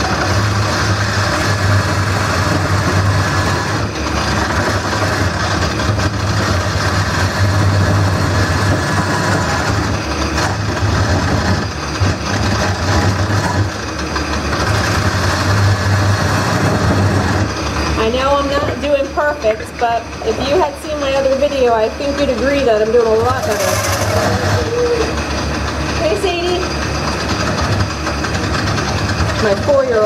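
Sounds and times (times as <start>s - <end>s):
gouge scraping wood: 0.0s - 17.9s, 23.2s - 24.6s
lathe motor hum: 0.0s - 30.0s.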